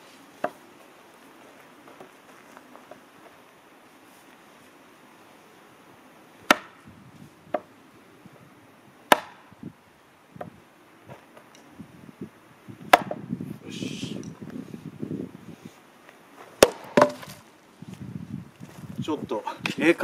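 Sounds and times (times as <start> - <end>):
axe chopping firewood: 6.5 - 6.8, 9.1 - 9.5, 12.9 - 13.2, 16.6 - 17.4
wood knocks: 16.6 - 17.4.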